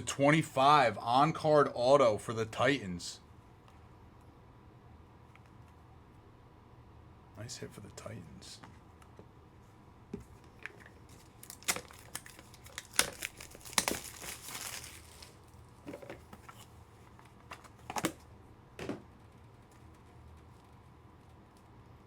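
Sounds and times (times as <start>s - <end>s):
plastic packaging crinkling: 10.6s - 16.8s.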